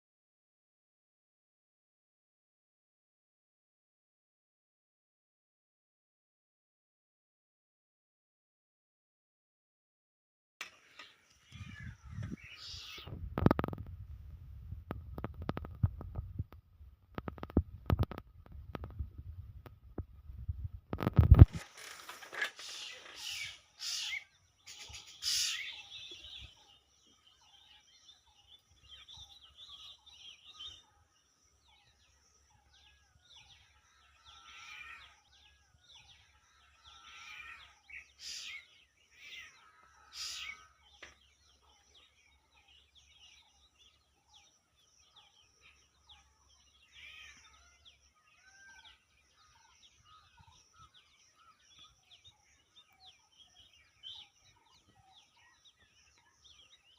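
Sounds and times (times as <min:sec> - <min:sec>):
birds chirping and calling: 0:10.6 - 0:13.9, 0:17.1 - 0:56.9.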